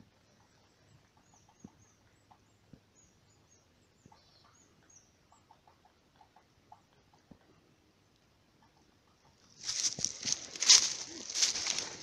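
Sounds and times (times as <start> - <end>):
small birds calling: 0.0 - 7.4.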